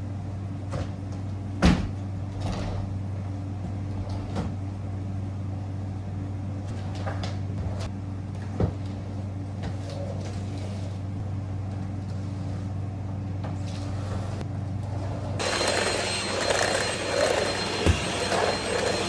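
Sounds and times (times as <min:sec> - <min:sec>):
appliance humming: 0:00.0 - 0:19.0
motor with high whine: 0:14.8 - 0:19.0.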